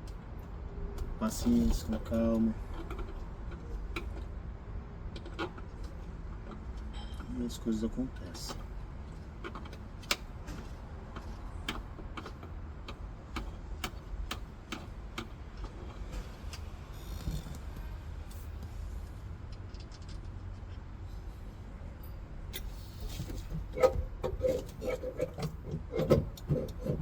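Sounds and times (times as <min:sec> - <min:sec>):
tools clicking on plastic parts: 0:02.6 - 0:04.4, 0:05.0 - 0:06.9, 0:08.3 - 0:17.6, 0:23.8 - 0:27.0.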